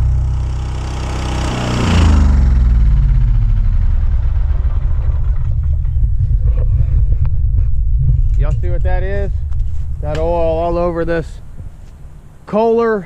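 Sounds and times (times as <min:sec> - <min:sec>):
mower engine winding down to idle: 0:00.0 - 0:08.0.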